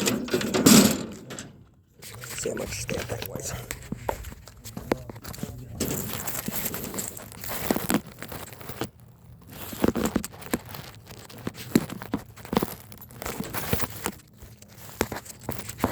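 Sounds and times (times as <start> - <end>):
handling knocks and scrapes: 0.0 - 8.9.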